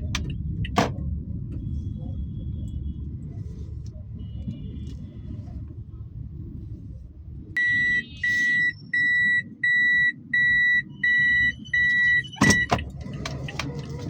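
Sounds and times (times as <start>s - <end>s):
car engine and road rumble: 0.0s - 14.0s
electronic warning beeps: 7.6s - 12.8s.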